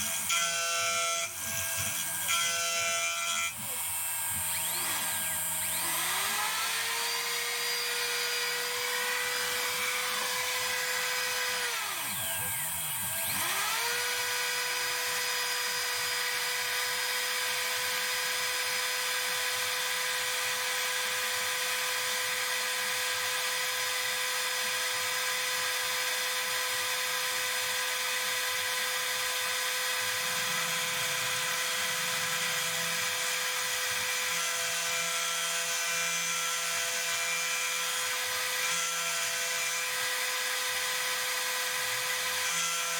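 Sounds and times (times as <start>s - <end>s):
milling machine motor whine: 0.0s - 17.9s, 28.8s - 35.1s.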